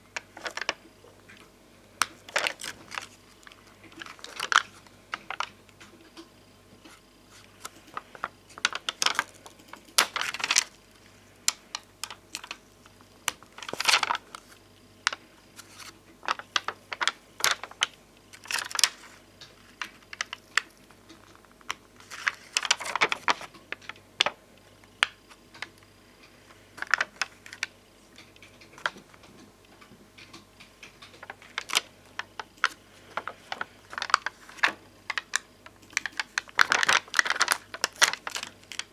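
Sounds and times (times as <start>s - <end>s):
rustling strokes on stickers: 6.8s - 10.7s.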